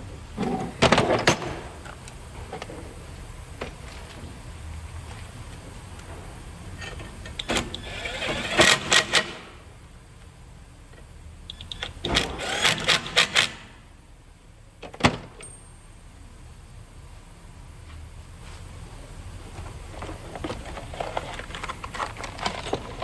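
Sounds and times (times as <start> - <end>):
tools and brake parts clattering: 19.6 - 23.0.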